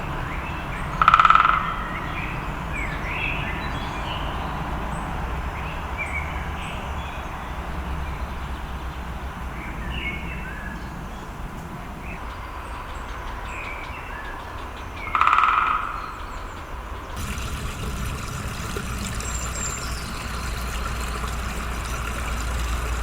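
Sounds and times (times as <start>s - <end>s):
songbirds singing: 0.0s - 23.0s
harsh buzzy bird call: 17.2s - 23.0s.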